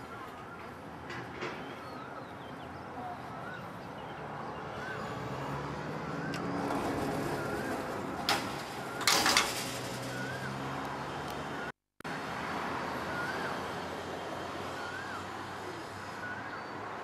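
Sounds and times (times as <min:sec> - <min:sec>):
passing vehicle hum: 0:02.8 - 0:17.0
sharp clatter: 0:06.7 - 0:10.4
loud rattle: 0:08.3 - 0:10.2.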